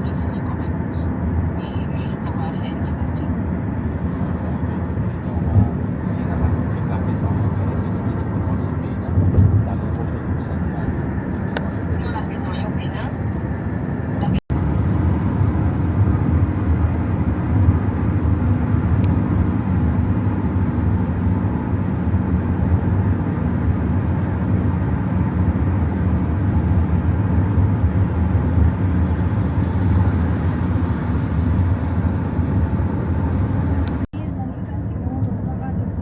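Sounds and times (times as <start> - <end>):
vehicle motor drone: 13.2 - 34.0.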